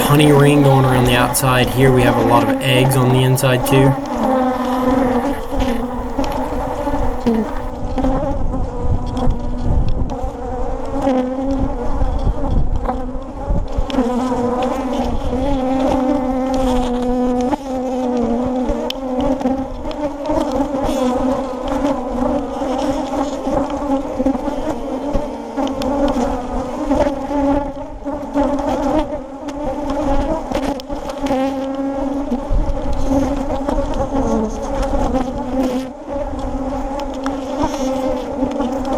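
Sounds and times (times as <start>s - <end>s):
honeybees buzzing: 0.0s - 7.7s.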